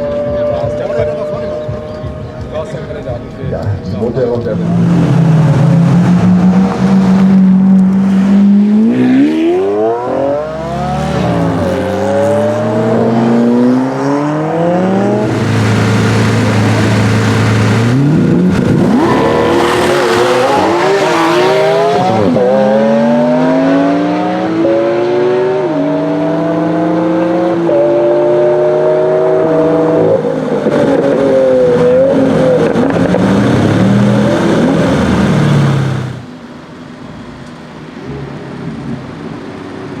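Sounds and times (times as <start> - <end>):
sports car accelerating through gears: 4.4 - 36.3.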